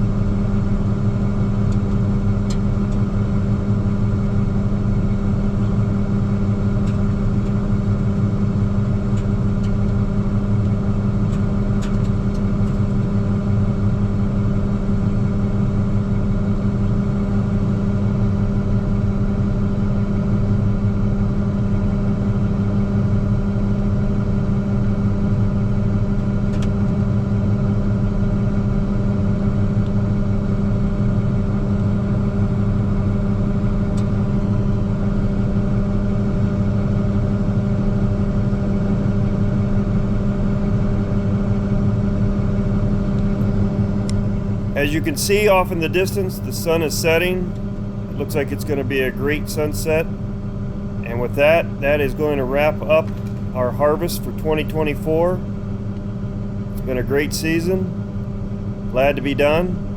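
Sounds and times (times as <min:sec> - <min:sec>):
diesel engine humming: 0:43.4 - 0:59.9.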